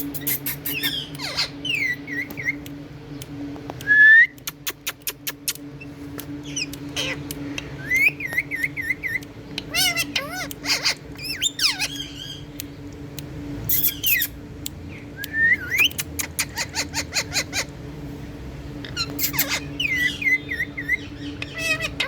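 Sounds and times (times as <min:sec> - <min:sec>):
parakeets chirping: 0:00.0 - 0:02.7, 0:04.6 - 0:12.6, 0:13.6 - 0:17.8, 0:18.8 - 0:22.0
parakeet clicks: 0:02.1 - 0:17.0.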